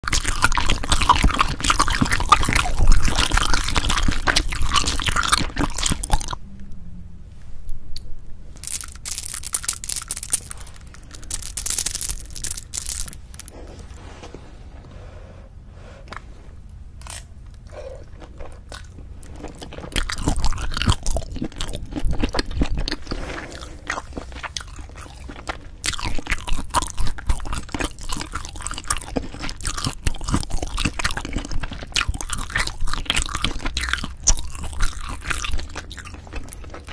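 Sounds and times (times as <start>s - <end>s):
chewing with wet mouth clicks: 0.0s - 6.4s, 17.5s - 36.9s.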